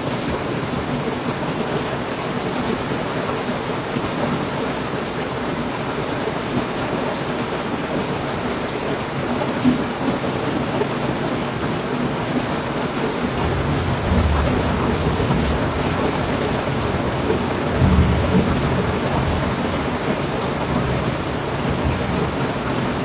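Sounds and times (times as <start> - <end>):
heavy rain pouring: 0.0 - 23.0
low rumble of thunder: 13.2 - 23.0.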